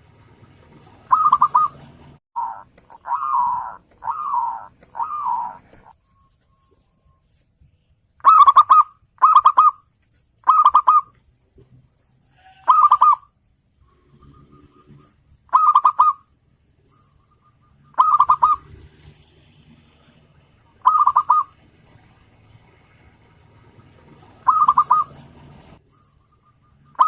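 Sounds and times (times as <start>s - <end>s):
dove cooing: 0.8s - 5.9s, 8.2s - 9.8s, 10.4s - 11.1s, 12.4s - 13.3s, 15.5s - 16.2s, 17.9s - 18.6s, 20.8s - 21.6s, 23.9s - 25.8s.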